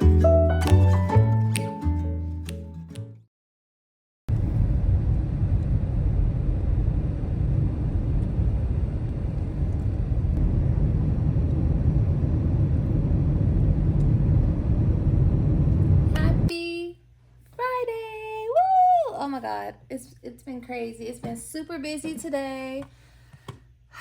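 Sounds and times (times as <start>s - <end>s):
steady low rumble: 4.3s - 16.5s.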